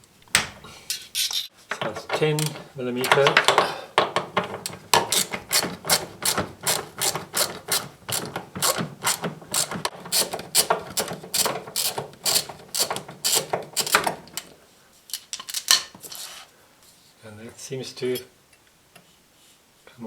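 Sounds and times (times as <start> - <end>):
ratchet wrench clicking: 5.1 - 10.8.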